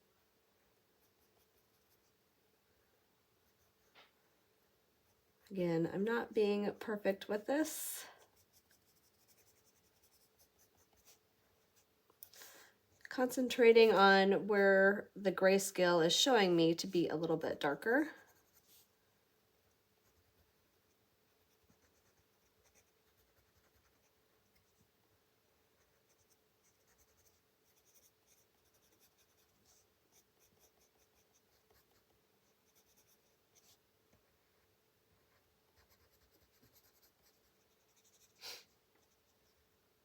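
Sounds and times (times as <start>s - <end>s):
colored pencil scratching on paper: 1.0s - 2.2s, 7.0s - 11.9s, 17.7s - 18.9s, 20.0s - 24.8s, 25.8s - 33.8s, 35.2s - 39.6s.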